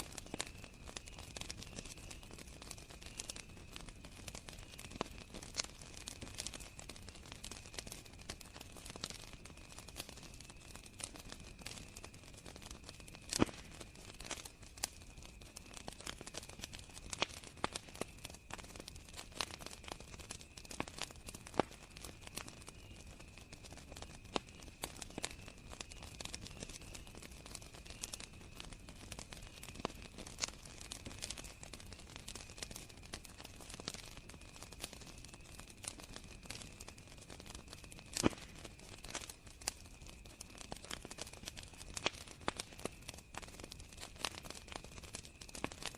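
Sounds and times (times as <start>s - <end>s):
cricket chorus: 0.0s - 45.9s
wood fire crackling and popping: 0.0s - 45.9s.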